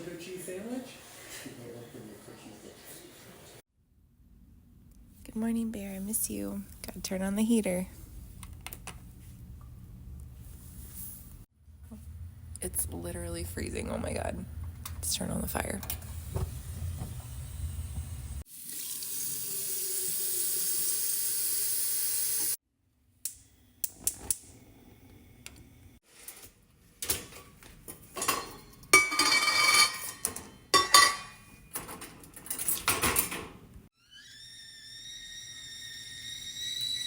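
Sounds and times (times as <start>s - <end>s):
tap water running into kettle: 17.9s - 22.6s
dishes clattering: 28.1s - 33.5s
kettle whistling: 34.0s - 37.0s.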